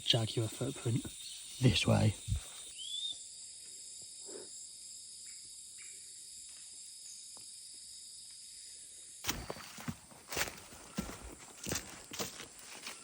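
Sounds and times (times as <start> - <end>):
insects buzzing and trilling: 0.0 - 13.0
footsteps: 9.3 - 13.0.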